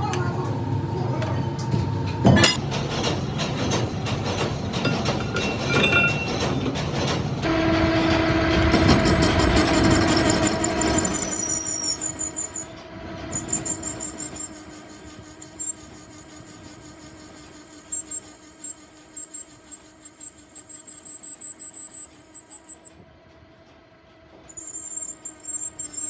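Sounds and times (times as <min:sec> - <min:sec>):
machine whine: 0:00.4 - 0:23.1, 0:24.4 - 0:26.0
metallic clatter and knocks: 0:02.2 - 0:07.5.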